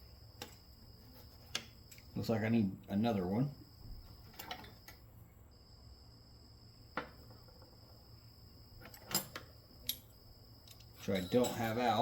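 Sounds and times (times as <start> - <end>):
hand tools clicking and knocking: 8.8 - 12.0.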